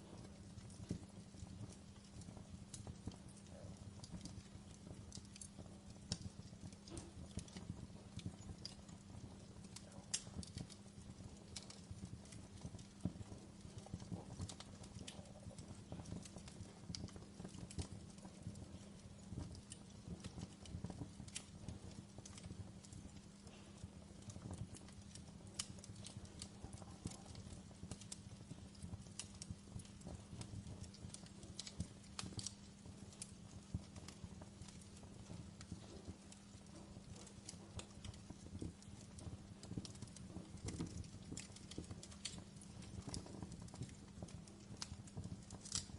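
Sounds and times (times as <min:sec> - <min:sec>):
burning logs crackling: 0:00.0 - 0:45.9.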